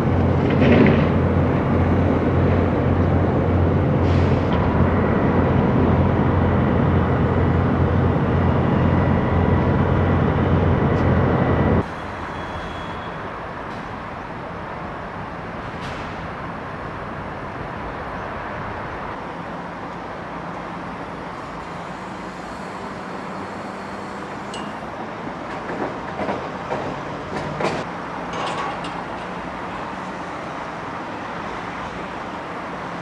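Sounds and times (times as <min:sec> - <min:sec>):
sharp knocks and clanks: 0:25.5 - 0:29.4.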